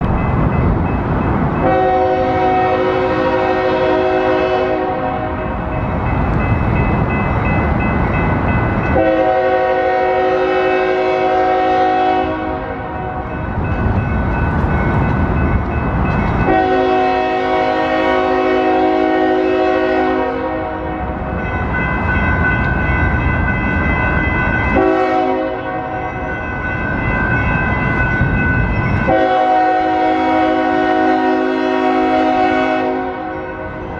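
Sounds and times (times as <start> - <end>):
train rumbling: 0.0 - 33.9
locomotive air horn blasts: 1.6 - 5.4, 9.0 - 13.1, 16.5 - 21.2, 24.7 - 26.0, 29.1 - 33.7.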